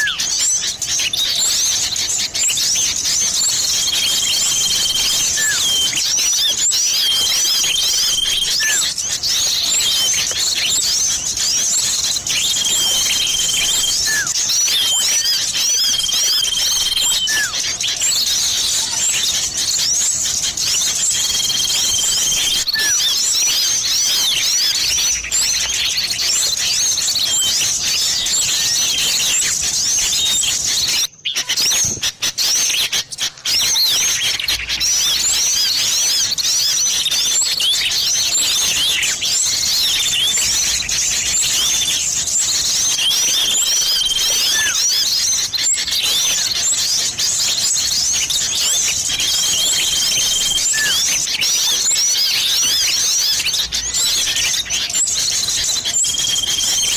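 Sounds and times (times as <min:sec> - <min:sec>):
songbirds chattering and chirping: 0:00.0 - 0:56.9
bird held whistle: 0:03.7 - 0:09.0, 0:11.4 - 0:17.9, 0:42.6 - 0:46.6, 0:48.2 - 0:56.9.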